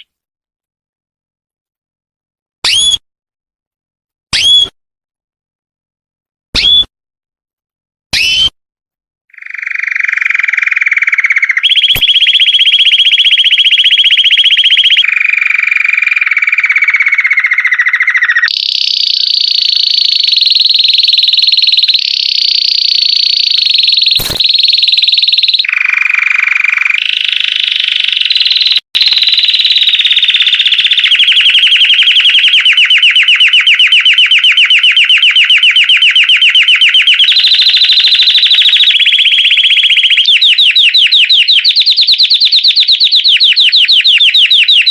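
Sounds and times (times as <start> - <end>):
canary singing trills: 9.3 - 44.9
sharp clicks: 11.6 - 12.3, 18.5 - 25.6.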